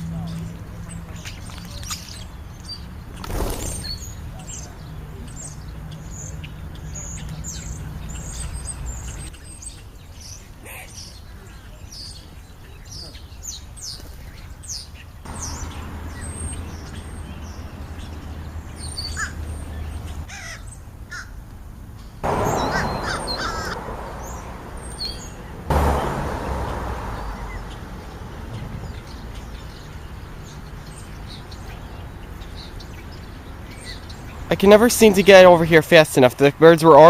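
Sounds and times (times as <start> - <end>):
small birds chirping: 0.0 - 37.0
crows cawing: 19.1 - 19.4, 20.3 - 21.4, 22.3 - 24.4
sudden rushes of noise: 22.2 - 29.4.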